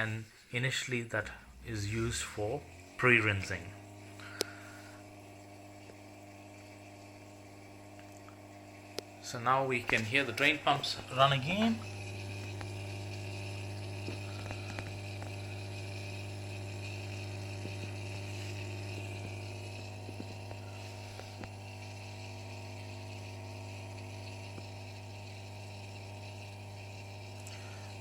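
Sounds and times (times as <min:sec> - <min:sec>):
dishwasher drain pump humming: 0:01.2 - 0:28.0.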